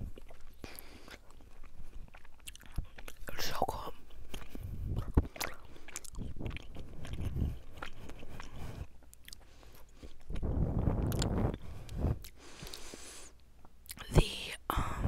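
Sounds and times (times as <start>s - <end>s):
person chewing and biting: 0.0s - 14.0s
wet mouth clicks and smacks: 4.3s - 12.9s.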